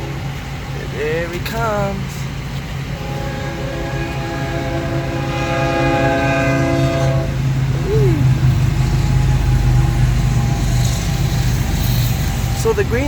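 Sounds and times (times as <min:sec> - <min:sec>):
diesel engines droning: 0:00.0 - 0:13.0
train rumble: 0:00.0 - 0:13.0
locomotive air horn: 0:02.9 - 0:07.6, 0:08.2 - 0:12.4.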